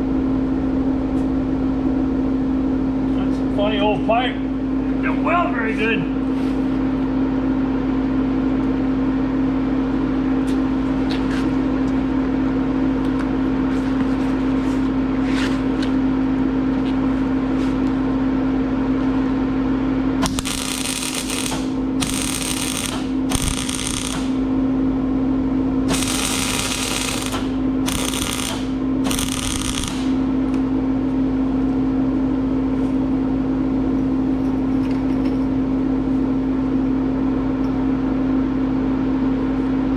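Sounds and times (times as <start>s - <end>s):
steady hum: 0.0s - 39.9s
welder arc crackling: 20.2s - 24.4s, 25.9s - 30.3s.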